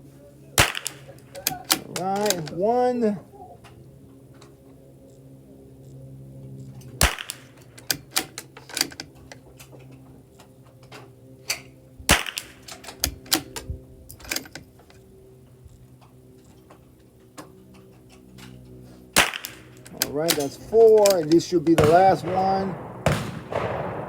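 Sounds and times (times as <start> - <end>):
rifle bolt clicks and clacks: 0.6 - 2.6, 6.8 - 14.7, 17.8 - 21.4
rifle shots: 0.6 - 2.6, 7.0 - 8.4, 12.1 - 13.5, 19.2 - 24.0.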